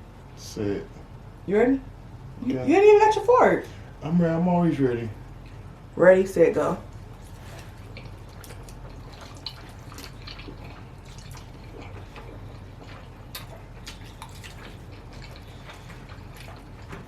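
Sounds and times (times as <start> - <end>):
wet slurping and chewing: 6.9 - 17.0
small mouth clicks and smacks: 7.8 - 17.0.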